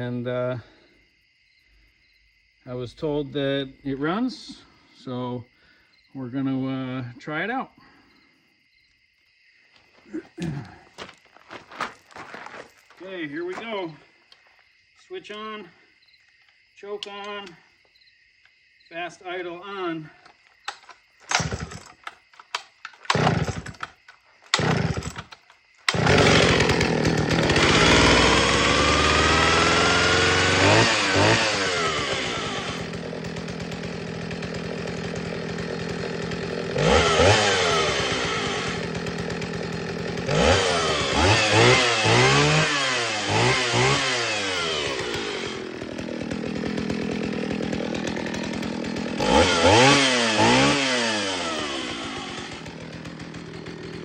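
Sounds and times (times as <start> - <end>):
chainsaw pull-start cord: 20.2 - 54.0
chainsaw engine revving: 20.7 - 54.0.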